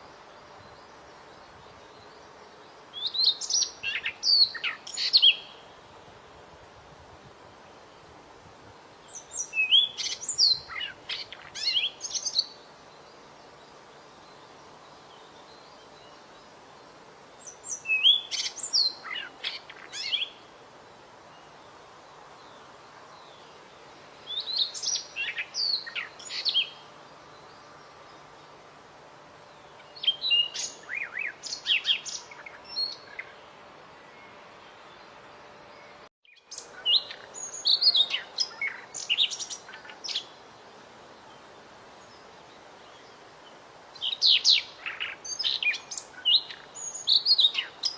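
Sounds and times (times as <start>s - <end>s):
bird singing whistled notes: 0.0s - 5.7s, 9.0s - 16.5s, 17.4s - 20.5s, 24.2s - 28.5s, 29.6s - 33.4s, 35.7s - 40.4s, 43.9s - 47.9s.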